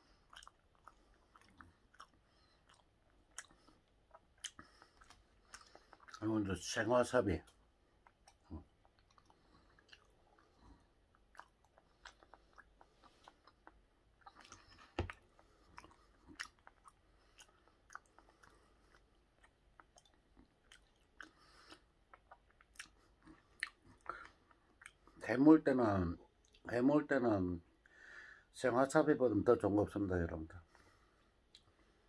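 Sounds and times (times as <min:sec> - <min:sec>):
wet chewing: 0:00.0 - 0:25.2.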